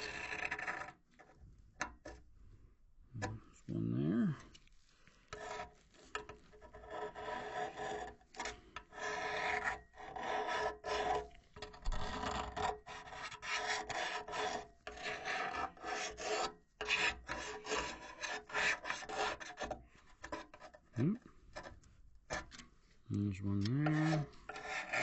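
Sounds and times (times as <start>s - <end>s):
metal pick scraping rusted metal: 5.3s - 20.8s, 23.6s - 25.0s.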